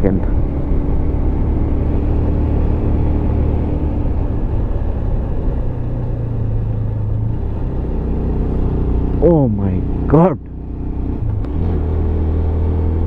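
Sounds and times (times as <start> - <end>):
motorcycle engine hum: 0.0 - 13.0.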